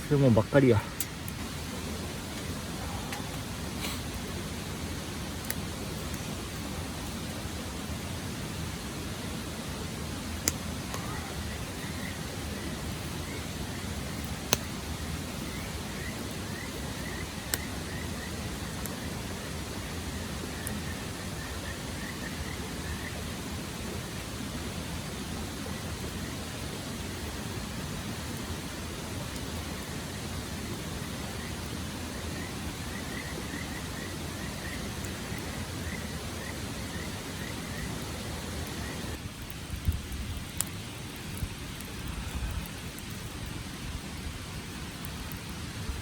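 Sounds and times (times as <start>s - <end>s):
crackling wood pops: 0.0s - 4.4s, 10.2s - 19.1s
steady rushing noise: 0.0s - 39.3s
wood fire hissing: 0.0s - 46.0s.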